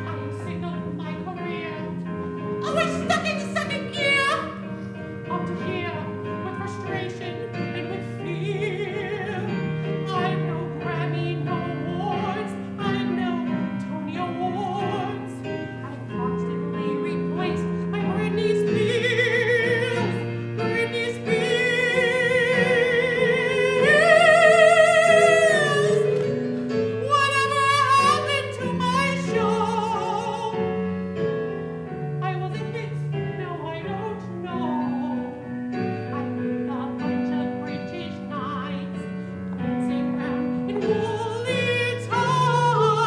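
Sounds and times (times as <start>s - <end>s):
operatic singing: 0.0s - 30.8s
piano accompaniment: 0.0s - 43.0s.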